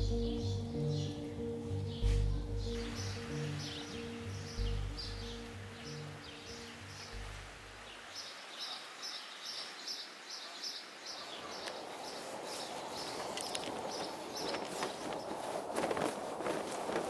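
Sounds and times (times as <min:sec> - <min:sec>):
footsteps on dry dirt: 0:02.0 - 0:02.4, 0:12.5 - 0:17.0.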